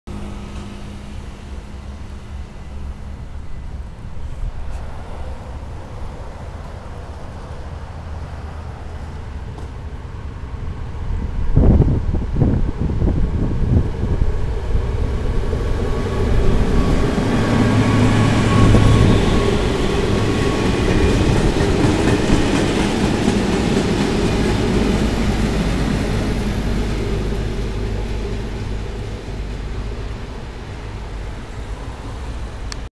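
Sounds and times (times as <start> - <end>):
train wagons rumbling on rails: 0.1 - 32.8
diesel locomotive engine: 0.1 - 32.9.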